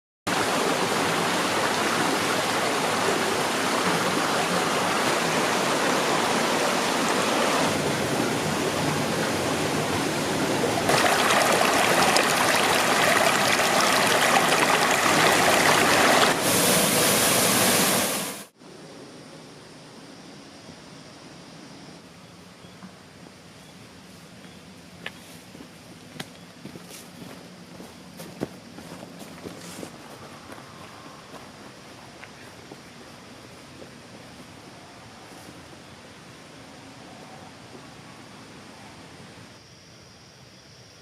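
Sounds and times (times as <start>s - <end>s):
waterfall rushing: 0.3s - 18.5s.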